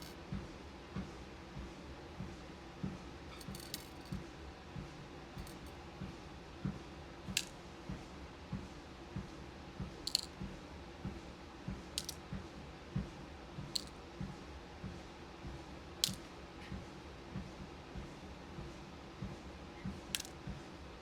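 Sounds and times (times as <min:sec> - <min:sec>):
treadmill low hum: 0:00.0 - 0:03.5, 0:04.1 - 0:21.0
plastic bead containers clicking: 0:03.4 - 0:04.2, 0:05.4 - 0:05.7, 0:10.1 - 0:10.3, 0:12.0 - 0:12.2, 0:13.8 - 0:14.0, 0:16.0 - 0:16.2, 0:20.2 - 0:20.4.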